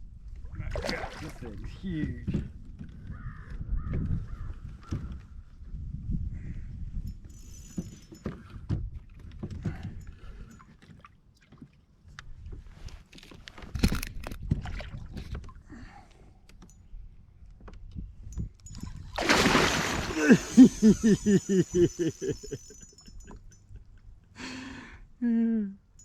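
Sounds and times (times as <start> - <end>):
water splashing: 0.7 - 1.5, 19.2 - 22.6
short pulses: 19.2 - 22.8.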